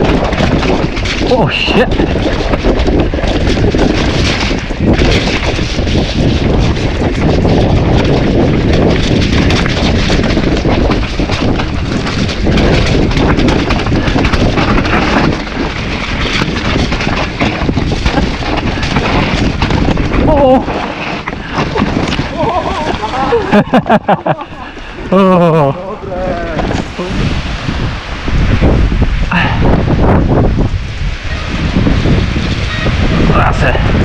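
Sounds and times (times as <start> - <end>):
bike knocks and rattles: 0.0 - 24.1
wind buffeting microphone: 0.0 - 34.0.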